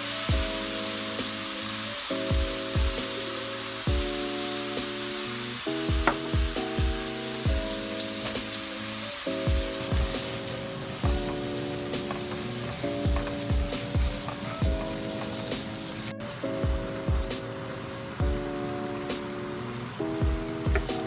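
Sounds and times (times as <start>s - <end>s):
food sizzling in a wok: 0.0s - 21.0s
music with kick-drum beat: 0.1s - 1.4s, 2.1s - 3.2s, 3.8s - 5.1s, 5.7s - 8.6s, 9.3s - 10.4s, 11.0s - 15.8s, 16.5s - 17.5s, 18.2s - 19.3s, 20.1s - 21.0s.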